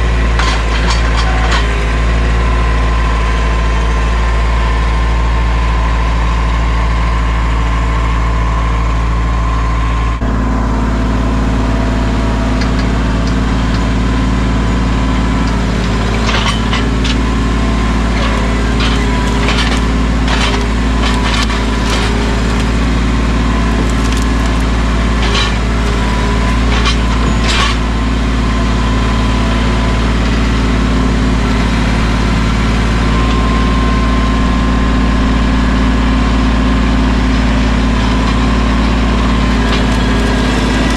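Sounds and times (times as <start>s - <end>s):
tractor diesel engine running: 0.0s - 40.9s
wood snapping and splintering: 15.4s - 28.2s, 38.0s - 40.9s.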